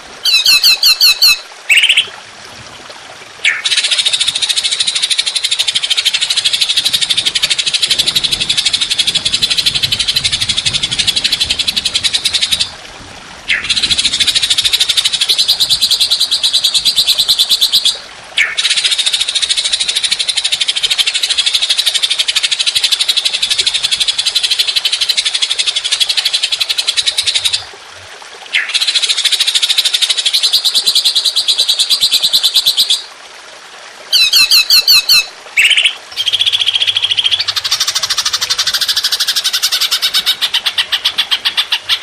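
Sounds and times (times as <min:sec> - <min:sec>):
songbird harsh rapid trill: 0:34.2 - 0:42.0.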